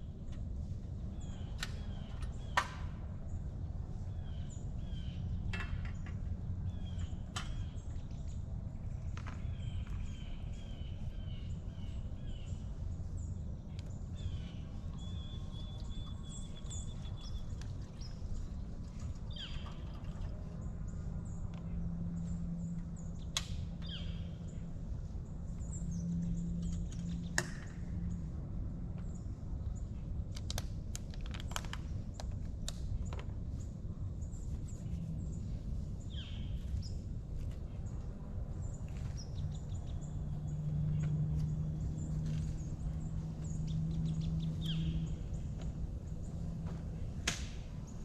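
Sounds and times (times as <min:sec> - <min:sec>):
low background rumble: 0:00.0 - 0:48.0
small birds chirping: 0:09.0 - 0:27.4, 0:31.7 - 0:47.0.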